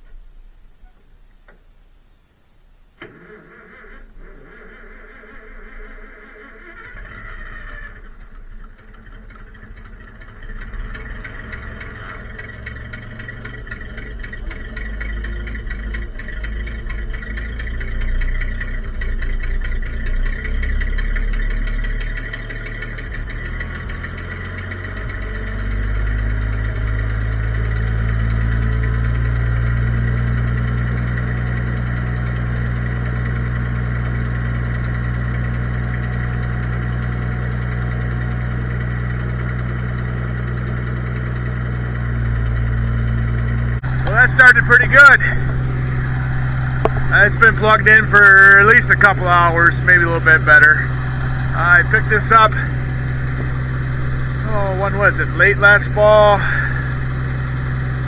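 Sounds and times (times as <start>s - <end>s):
tractor engine starting and idling: 0.0s - 58.0s.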